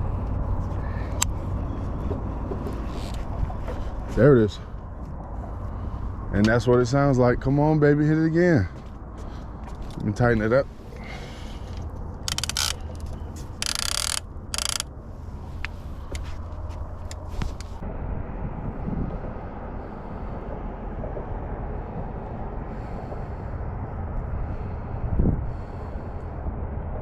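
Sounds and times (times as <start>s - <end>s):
wind on microphone: 15.6s - 27.0s.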